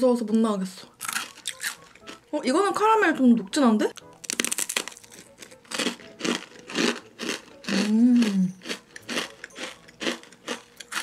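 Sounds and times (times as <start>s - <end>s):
crisp crunching chews: 1.0s - 2.2s, 4.0s - 11.0s
crackling bite: 4.0s - 11.0s.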